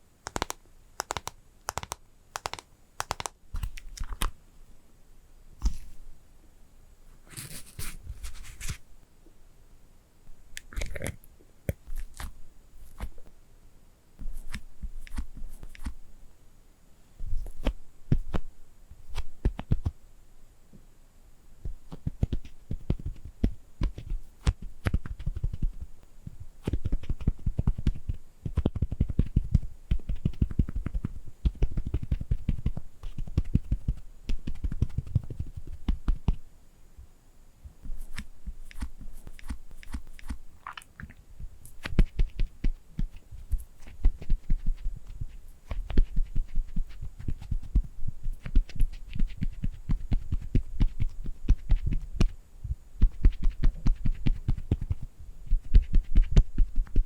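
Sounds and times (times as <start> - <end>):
fingertip and nail tapping: 0.2 - 4.2.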